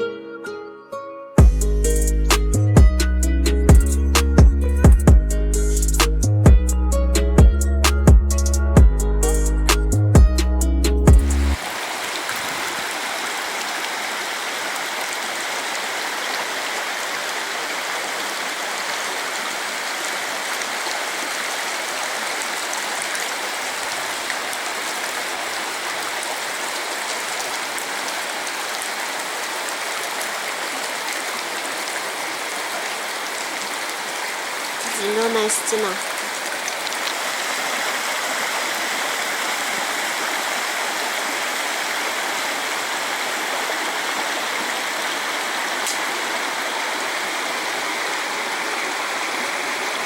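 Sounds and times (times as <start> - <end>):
stream water rushing: 11.3 - 50.0.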